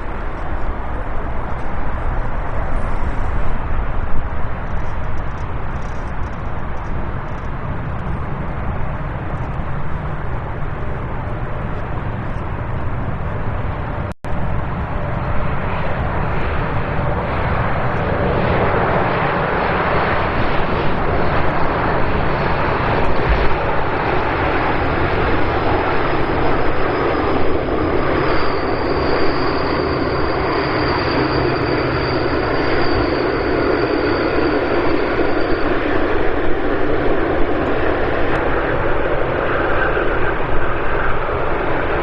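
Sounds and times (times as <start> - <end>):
jet engines rushing: 0.0 - 42.0.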